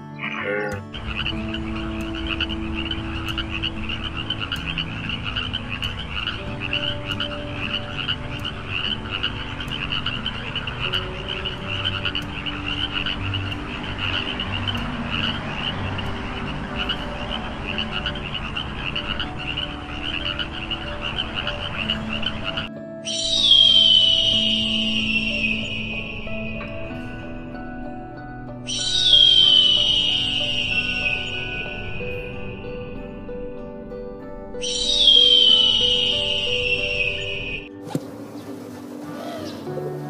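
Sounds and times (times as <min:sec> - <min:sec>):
frogs trilling: 0:00.0 - 0:33.2, 0:34.5 - 0:37.7
low frog croaks: 0:00.2 - 0:26.5, 0:28.7 - 0:31.6.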